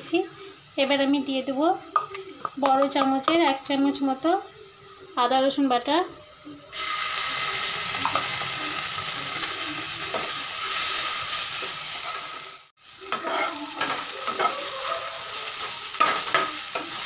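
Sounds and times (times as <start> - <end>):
onions sizzling in hot oil: 0.0 - 17.0
spatula scraping a pan: 9.3 - 17.0.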